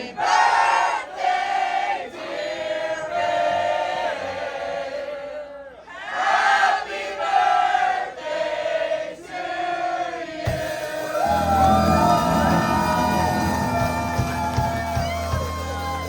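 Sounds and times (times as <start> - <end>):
voices singing together: 6.0 - 16.0
rock band playing: 10.5 - 16.0.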